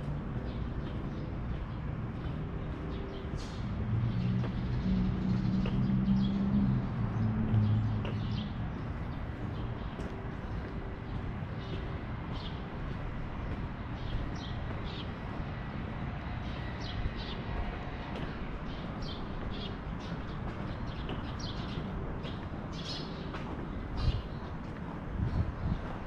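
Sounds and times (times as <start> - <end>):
street noise rumble: 0.0 - 26.0
small birds chirping: 16.4 - 25.8.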